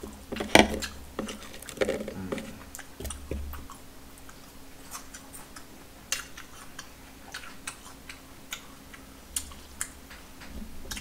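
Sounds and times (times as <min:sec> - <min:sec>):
chewing with wet clicks and smacks: 0:02.6 - 0:11.0.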